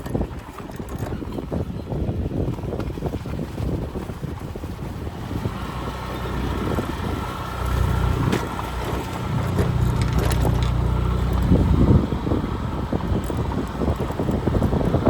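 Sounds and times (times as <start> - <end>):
wind buffeting microphone: 0.0 - 15.0
engine humming: 5.0 - 15.0.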